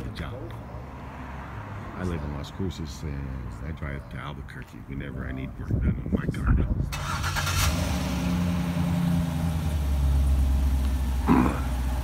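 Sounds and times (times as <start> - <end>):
car engine idling: 6.9 - 12.0.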